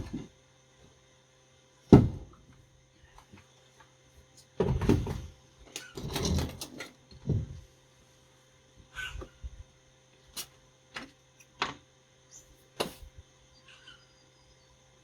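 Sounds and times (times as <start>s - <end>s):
loud knock on workbench: 1.9s - 2.2s
tools clunking and rattling: 4.6s - 7.6s.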